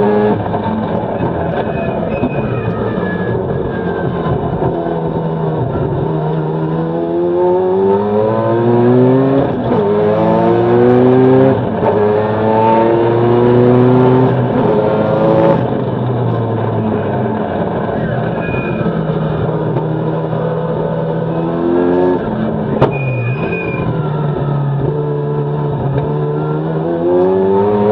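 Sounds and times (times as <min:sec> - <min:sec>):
car engine accelerating: 0:00.0 - 0:27.9.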